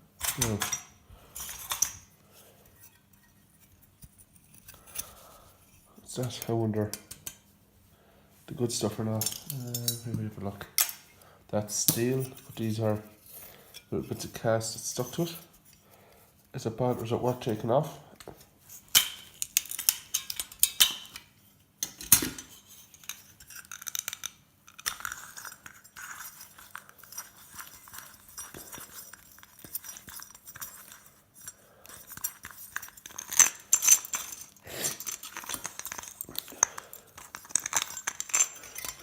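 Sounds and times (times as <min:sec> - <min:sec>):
metal parts clinking: 0:00.2 - 0:02.1, 0:08.8 - 0:15.9, 0:18.7 - 0:21.2, 0:21.8 - 0:39.0
metal scraping and rubbing: 0:00.2 - 0:07.3.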